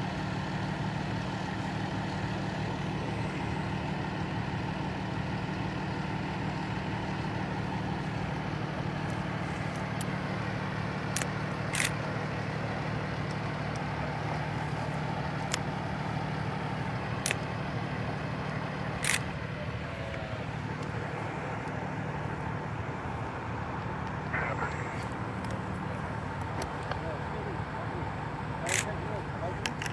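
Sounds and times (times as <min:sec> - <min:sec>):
large vehicle engine idling: 0:00.0 - 0:29.9
short sharp clicks: 0:11.1 - 0:12.0, 0:19.0 - 0:19.4, 0:28.7 - 0:29.0.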